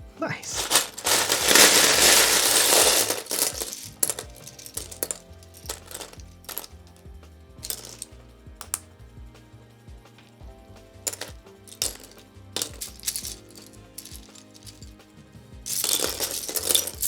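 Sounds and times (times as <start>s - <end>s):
background music: 0.0s - 17.0s
plastic bricks rattling: 0.5s - 6.8s, 7.6s - 8.8s, 11.1s - 14.9s, 15.7s - 17.0s
plastic pieces clicking: 0.5s - 6.8s, 7.6s - 8.8s, 11.1s - 14.9s, 15.7s - 17.0s.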